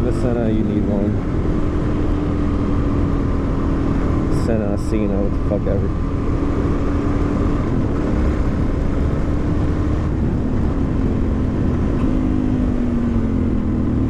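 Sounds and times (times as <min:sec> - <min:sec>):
motorcycle engine running: 0:00.0 - 0:14.0
wind rush: 0:05.9 - 0:13.7.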